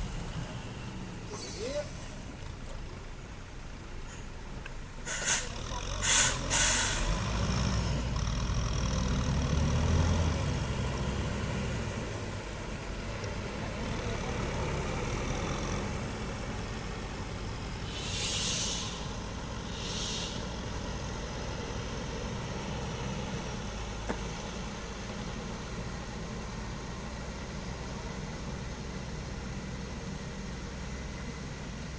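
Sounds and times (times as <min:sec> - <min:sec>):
truck diesel engine running: 0:00.0 - 0:31.9
air brake hisses: 0:01.3 - 0:02.2, 0:05.0 - 0:07.2, 0:17.8 - 0:20.6.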